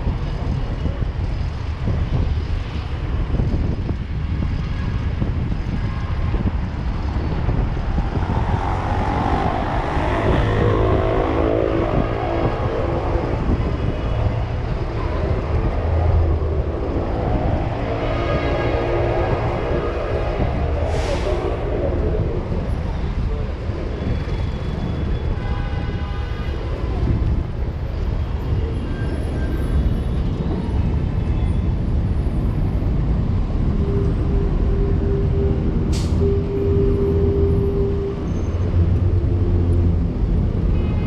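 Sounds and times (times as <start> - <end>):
street traffic rumble: 0.0 - 41.0
wind buffeting microphone: 0.0 - 41.0
vehicle engine passing: 7.0 - 22.6.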